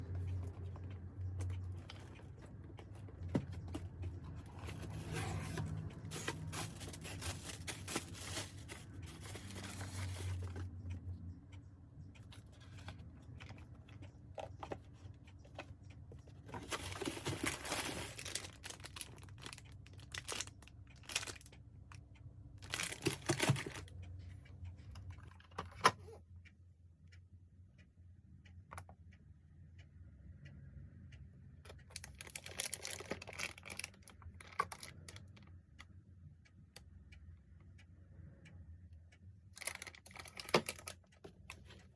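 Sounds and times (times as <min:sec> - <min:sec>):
tools and parts scraping and rustling: 0:01.4 - 0:10.6, 0:16.5 - 0:19.1.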